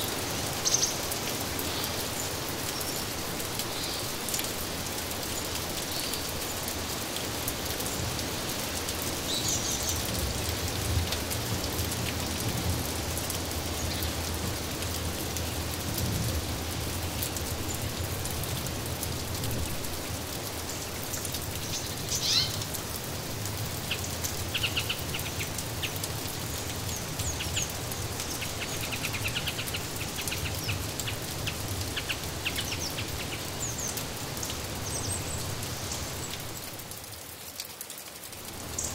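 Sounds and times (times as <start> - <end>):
small birds chirping: 0.0 - 4.2, 21.5 - 22.7, 23.8 - 34.1
steady rain falling: 0.0 - 38.9.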